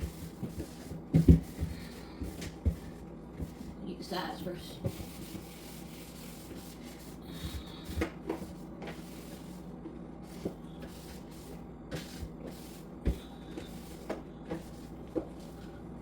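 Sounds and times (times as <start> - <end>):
rag wiping plastic walls: 4.5 - 15.6.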